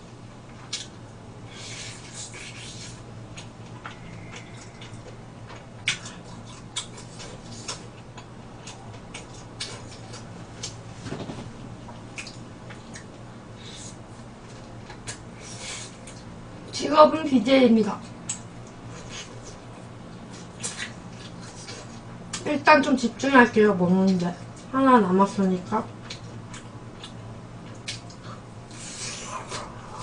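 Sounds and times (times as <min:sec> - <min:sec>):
low room hum: 0:00.0 - 0:30.0
gnawing and chewing: 0:02.0 - 0:10.8
wet clicks and lip smacks: 0:12.1 - 0:13.1, 0:26.1 - 0:28.2.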